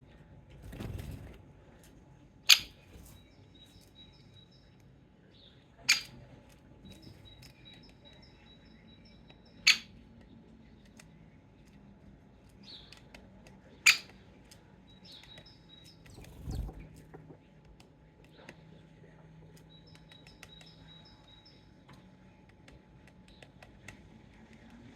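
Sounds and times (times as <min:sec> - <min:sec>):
small birds singing: 0:00.1 - 0:24.9
woodpecker sharp kik calls: 0:09.6 - 0:09.9.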